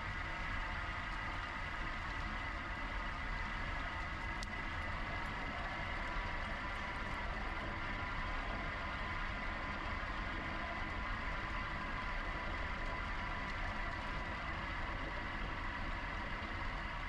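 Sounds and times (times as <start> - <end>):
steady high whine: 0.0 - 17.0.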